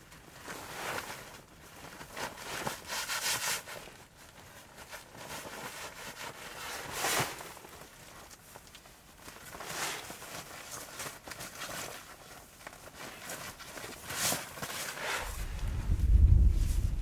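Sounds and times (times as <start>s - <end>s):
soft swishing rustles: 15.1s - 17.0s
wind rumble on microphone: 15.2s - 17.0s.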